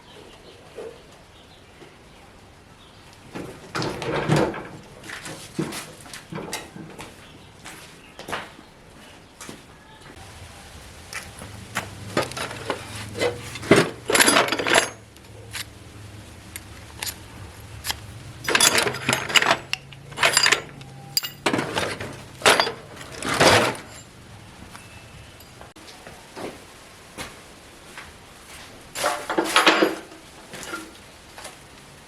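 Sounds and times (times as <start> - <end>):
sewing machine parts clinking: 11.2 - 24.2.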